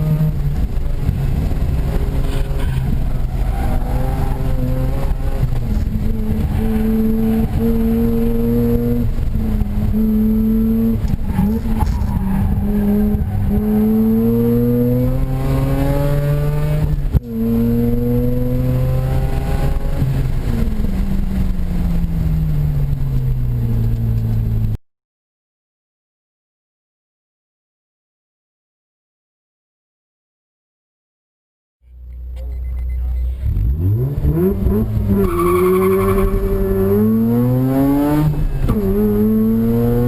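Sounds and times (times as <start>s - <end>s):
rotary engine revving: 33.4s - 40.0s.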